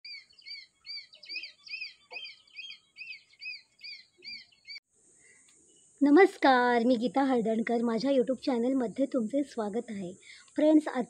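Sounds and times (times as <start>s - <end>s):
small bird chirping: 0.0s - 6.0s
faint hiss: 4.9s - 11.0s.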